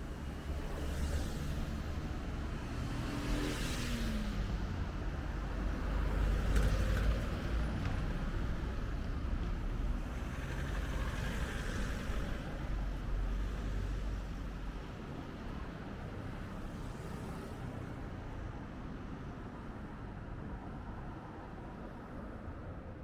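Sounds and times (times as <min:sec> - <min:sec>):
vehicles passing by: 0:00.0 - 0:18.0.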